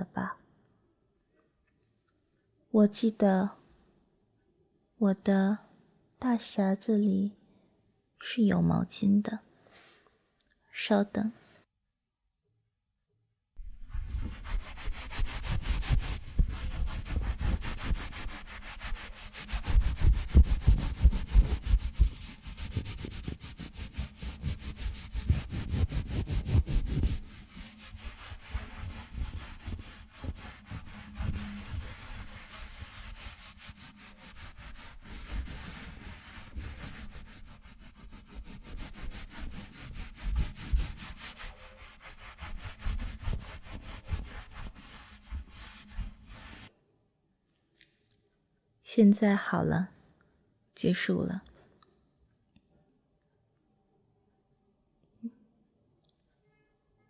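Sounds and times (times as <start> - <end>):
towel rubbing hair: 13.6 - 46.7.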